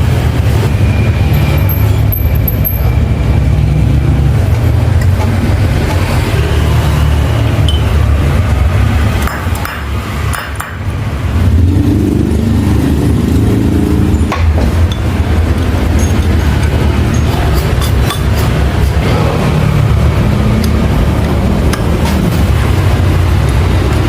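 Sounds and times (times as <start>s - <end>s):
metal tools clinking: 1.3s - 3.0s, 14.1s - 19.0s.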